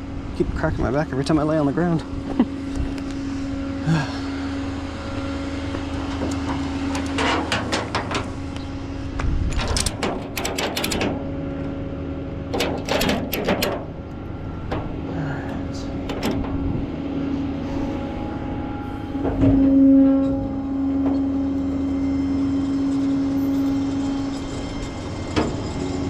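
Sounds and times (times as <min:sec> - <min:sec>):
truck engine droning: 0:00.0 - 0:26.0
metallic clinks and rattles: 0:09.5 - 0:11.2, 0:12.5 - 0:13.9.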